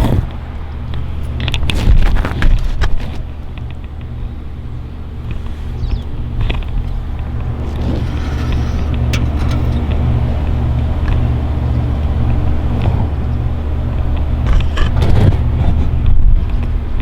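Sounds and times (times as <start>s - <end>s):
low mechanical hum: 0.0s - 17.0s
clicks and knocks: 6.8s - 10.6s.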